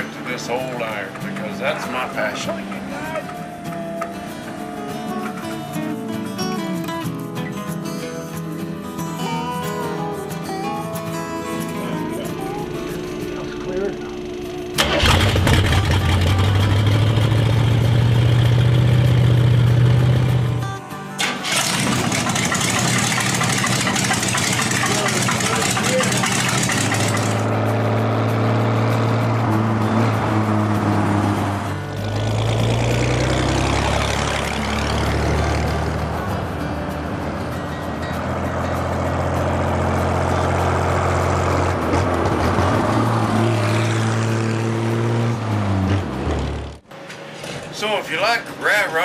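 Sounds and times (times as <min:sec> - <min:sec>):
engine with hissing exhaust: 0:21.5 - 0:45.0.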